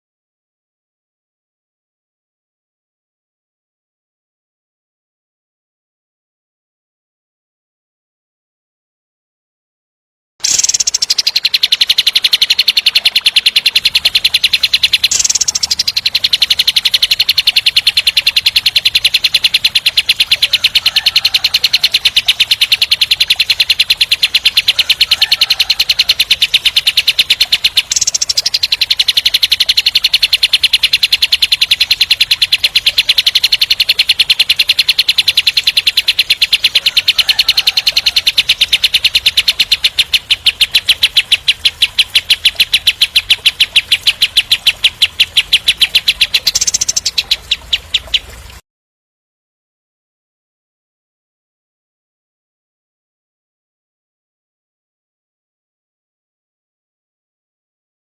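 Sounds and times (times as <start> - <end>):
songbird rapid rattling song: 10.4 - 48.6.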